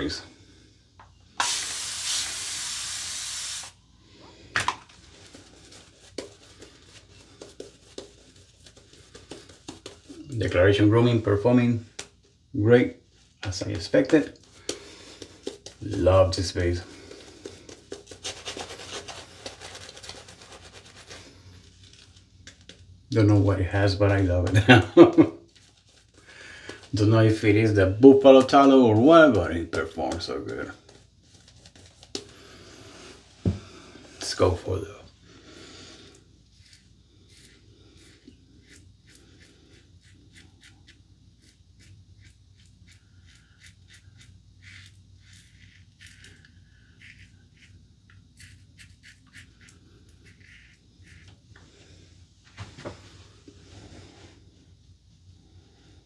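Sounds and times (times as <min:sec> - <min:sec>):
razor scraping stubble: 0:48.4 - 0:51.4.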